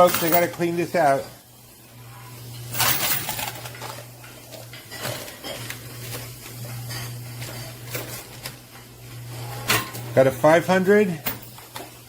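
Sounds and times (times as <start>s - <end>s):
coins clinking: 0.0s - 1.0s, 2.6s - 4.1s, 11.0s - 11.8s.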